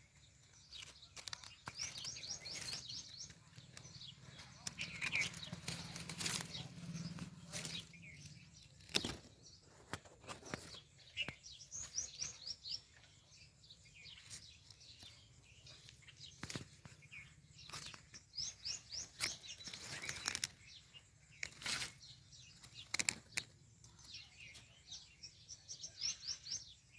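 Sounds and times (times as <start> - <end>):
sparrows chirping: 0.0 - 26.9
sharp taps and rustles: 0.6 - 12.4, 15.8 - 24.7.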